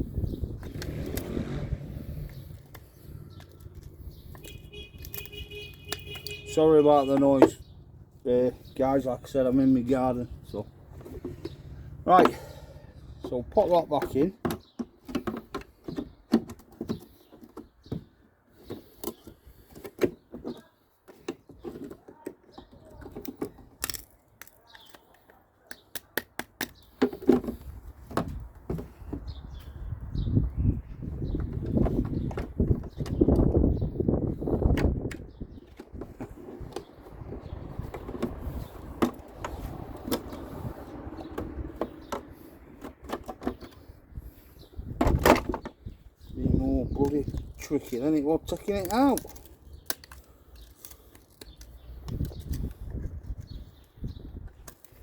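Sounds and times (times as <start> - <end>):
plastic parts clicking: 2.3 - 6.5, 18.6 - 27.3, 47.0 - 53.1.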